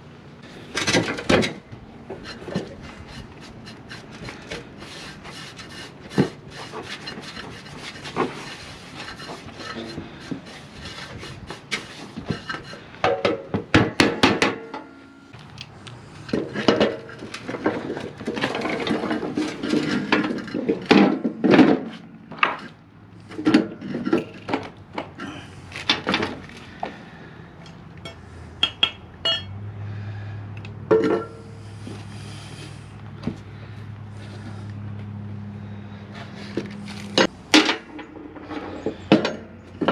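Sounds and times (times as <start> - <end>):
metal tools clanking: 14.6 - 15.9, 24.2 - 25.4, 27.6 - 29.6
low steady hum: 24.2 - 25.7.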